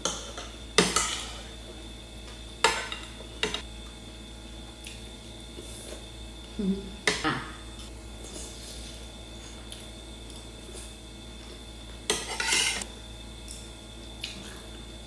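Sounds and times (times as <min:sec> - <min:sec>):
cutlery clinking on a plate: 0:12.1 - 0:12.8.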